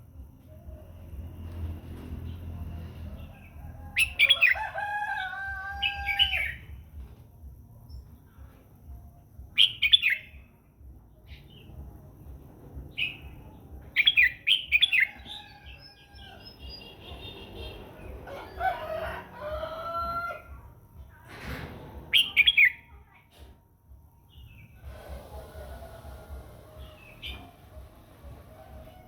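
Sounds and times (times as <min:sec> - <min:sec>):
bird singing whistled phrases: 0:22.1 - 0:22.9.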